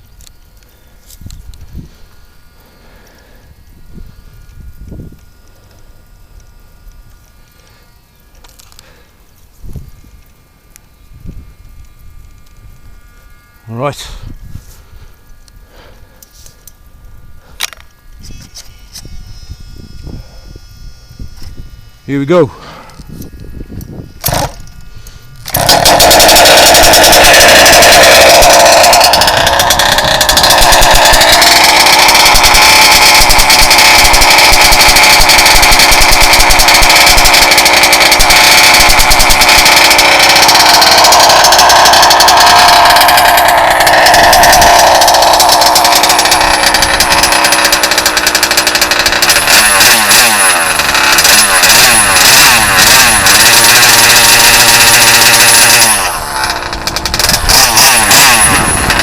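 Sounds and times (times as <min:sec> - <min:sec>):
two-stroke engine running: 0:23.6 - 0:59.0.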